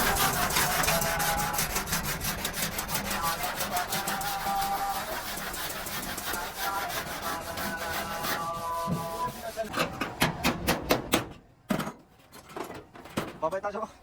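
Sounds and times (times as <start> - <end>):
abrasive scraping on metal: 0.0 - 10.0.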